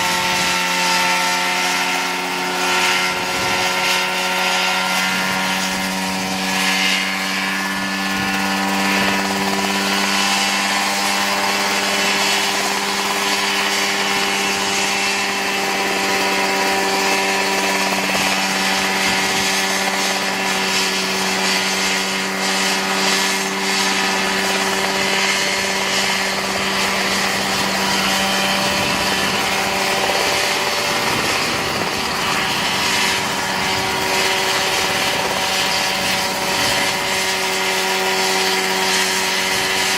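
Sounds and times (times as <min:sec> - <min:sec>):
helicopter engine and rotor running: 0:00.0 - 0:39.9.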